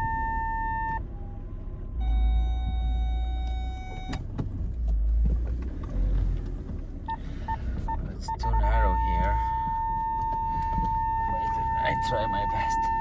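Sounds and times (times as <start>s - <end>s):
parking sensor warning tones: 0.0s - 1.0s, 2.0s - 4.3s, 7.1s - 13.0s
car engine rumbling: 0.0s - 13.0s.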